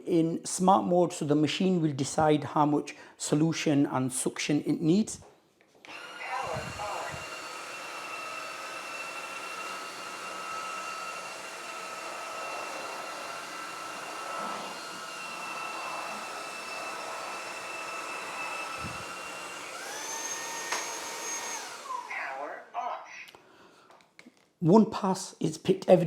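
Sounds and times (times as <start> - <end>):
floor cleaner motor whine: 5.9 - 22.6.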